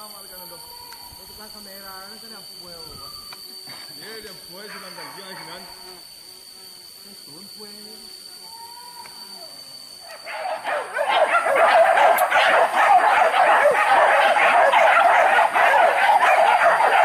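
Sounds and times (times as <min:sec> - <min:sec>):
dogs barking and yelping: 0:10.0 - 0:17.0.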